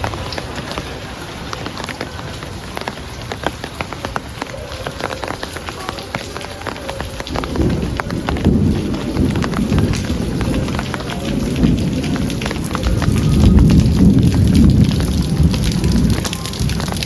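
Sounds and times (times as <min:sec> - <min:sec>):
heavy rain falling: 0:00.0 - 0:17.0
low rumble of thunder: 0:07.0 - 0:17.0.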